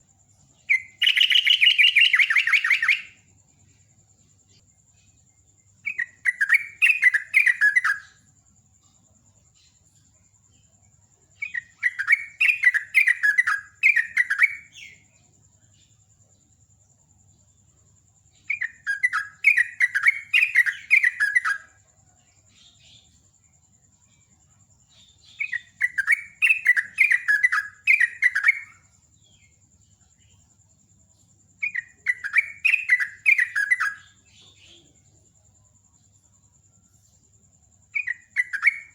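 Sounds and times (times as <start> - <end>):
bulbul chattering song: 0.0 - 16.1, 18.2 - 38.9.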